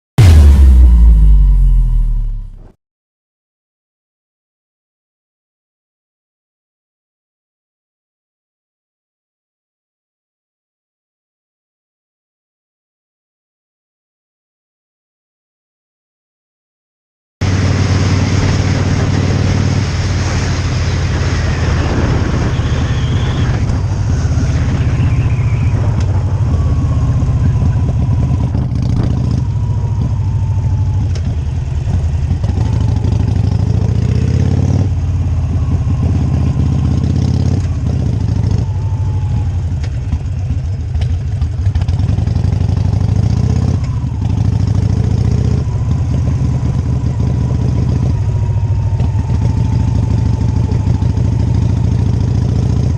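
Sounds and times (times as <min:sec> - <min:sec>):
motorcycle engine running: 0:00.2 - 0:02.7, 0:17.4 - 0:52.9.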